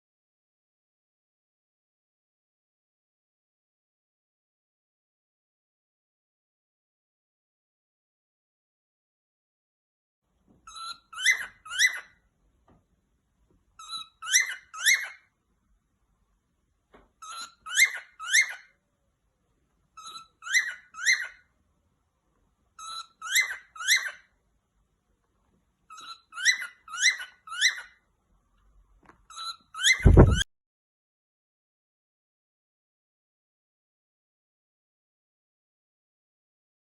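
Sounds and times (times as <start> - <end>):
parrot chirping call: 10.7 - 12.3, 13.8 - 15.3, 17.2 - 18.8, 19.9 - 21.6, 22.7 - 24.4, 25.9 - 28.1, 29.3 - 30.4
thump: 30.0 - 30.4.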